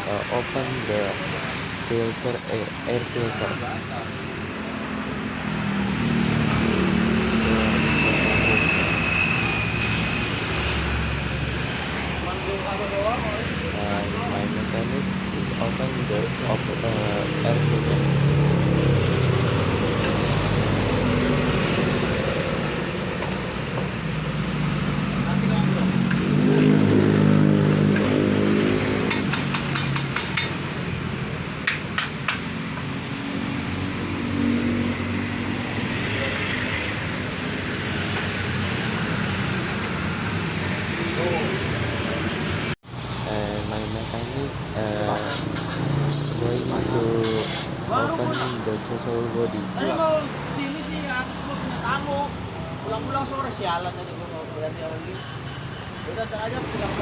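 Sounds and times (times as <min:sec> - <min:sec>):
passing vehicle engine hum: 0:00.2 - 0:53.1
hand tools clicking and tapping: 0:29.0 - 0:30.6, 0:31.6 - 0:32.9.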